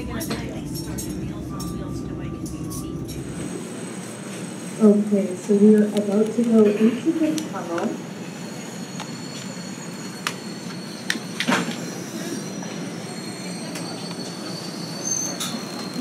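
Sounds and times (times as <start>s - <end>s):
train rumbling: 0.0s - 16.0s
high wheel squeal: 6.7s - 16.0s.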